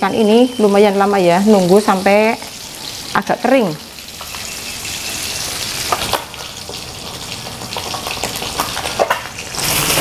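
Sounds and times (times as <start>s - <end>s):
fish frying in hot oil: 0.0s - 10.0s.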